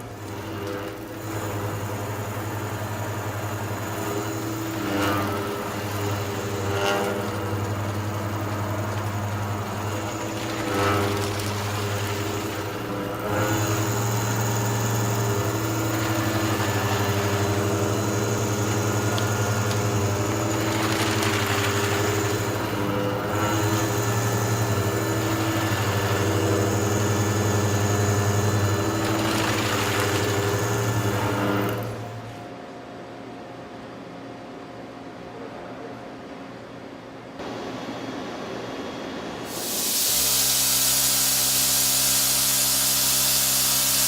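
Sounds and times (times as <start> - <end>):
high machine whine: 0.0 - 32.3
hiss: 39.5 - 44.0.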